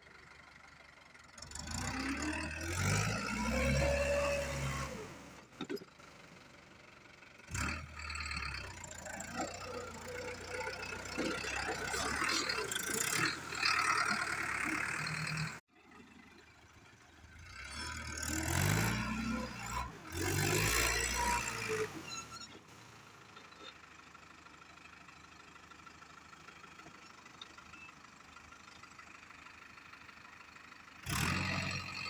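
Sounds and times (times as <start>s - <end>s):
tractor engine revving: 1.3s - 5.8s, 7.5s - 16.1s, 17.4s - 23.7s, 31.0s - 32.0s.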